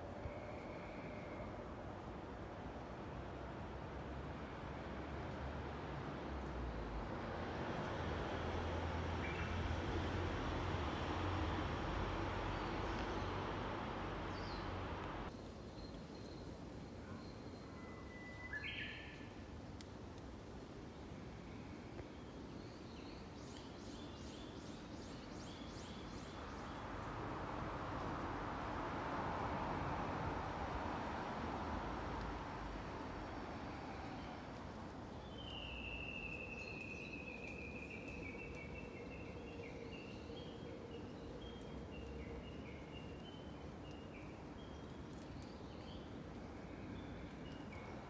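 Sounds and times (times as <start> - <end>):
background rush: 6.6 - 15.3.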